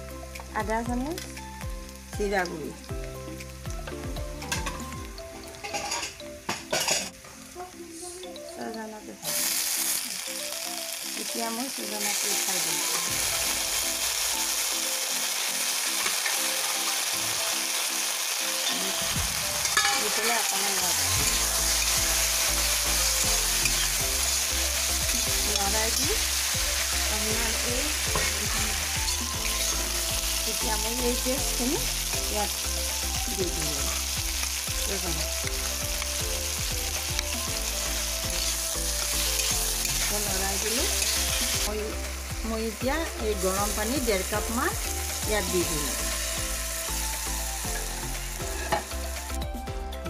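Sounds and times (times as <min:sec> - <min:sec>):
vegetables sizzling in hot oil: 0:00.0 - 0:49.5.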